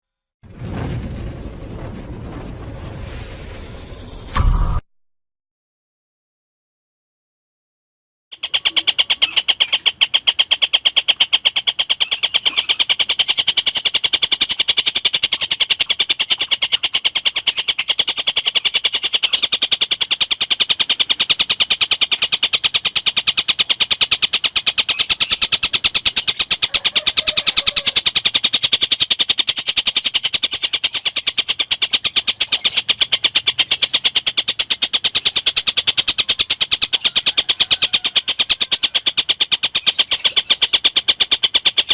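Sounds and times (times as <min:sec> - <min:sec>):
kingfisher chattering call: 0:08.4 - 0:41.9.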